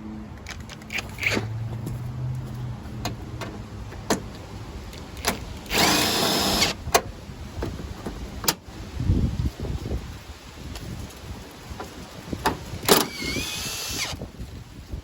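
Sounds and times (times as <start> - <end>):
handheld power tool burst: 5.7 - 6.8, 12.9 - 14.2.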